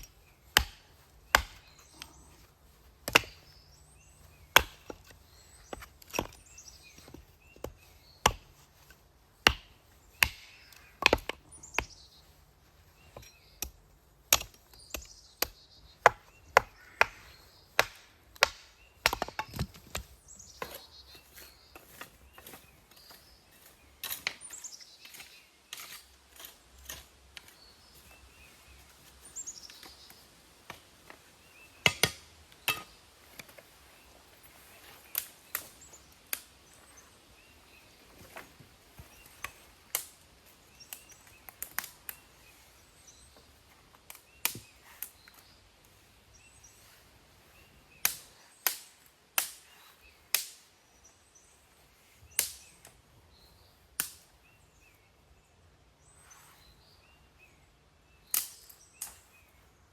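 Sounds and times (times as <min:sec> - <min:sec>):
wood snapping and knocking: 0:00.5 - 0:01.7, 0:03.0 - 0:03.4, 0:09.4 - 0:11.9, 0:13.2 - 0:20.8.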